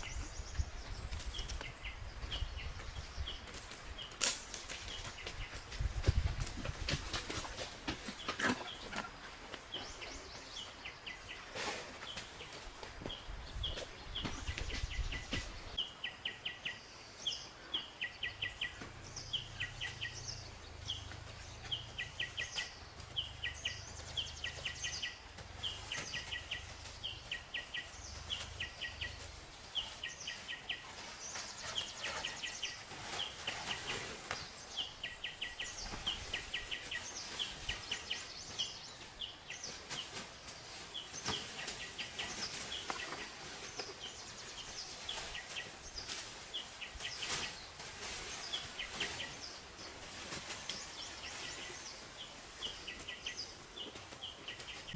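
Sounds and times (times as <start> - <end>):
bird chirping: 0.0 - 6.2, 8.0 - 40.2.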